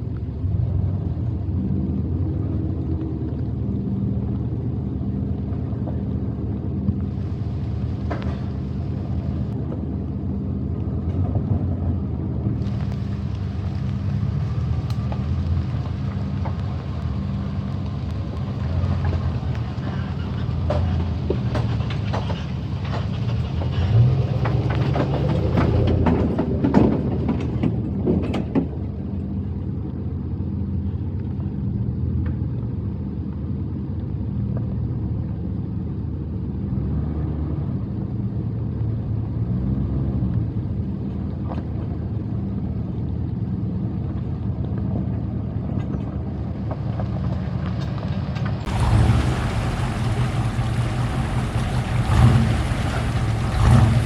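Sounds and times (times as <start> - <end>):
vehicle engine running: 0.0 - 36.6, 40.5 - 54.0
knocks and rattles: 18.6 - 28.8.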